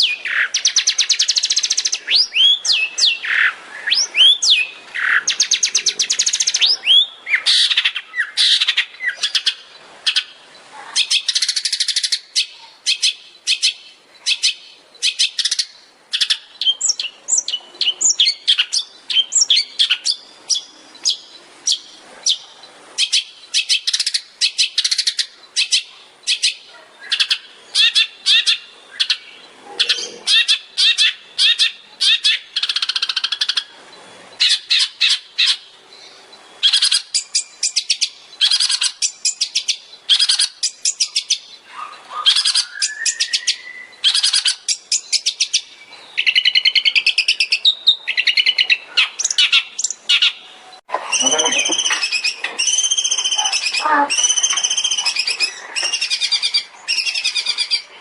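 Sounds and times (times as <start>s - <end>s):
bird singing sharp high chirps: 0.0s - 10.3s, 34.3s - 57.9s.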